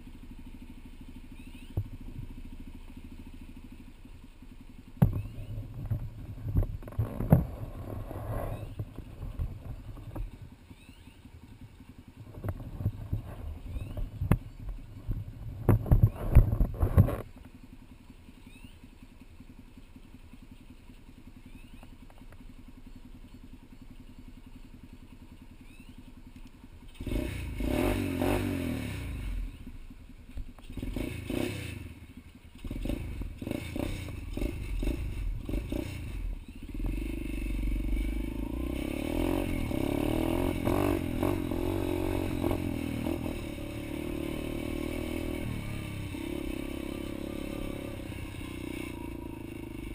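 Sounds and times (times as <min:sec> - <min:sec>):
motorbike engine revving: 0:04.7 - 0:17.2, 0:26.8 - 0:49.9.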